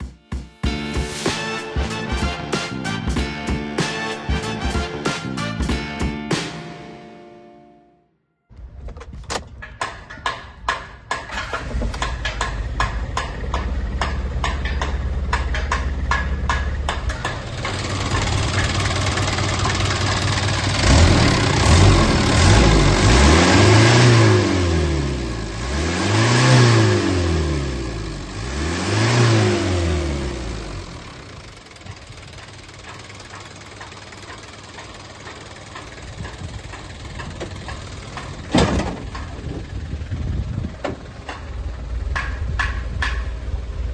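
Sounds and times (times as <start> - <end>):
diesel engine clattering and revving: 11.2 - 43.9.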